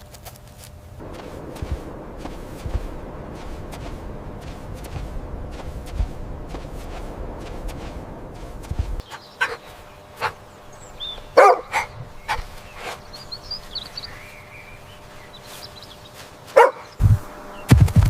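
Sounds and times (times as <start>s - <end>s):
dog barking: 9.4s - 9.6s, 11.3s - 12.4s, 16.5s - 16.9s.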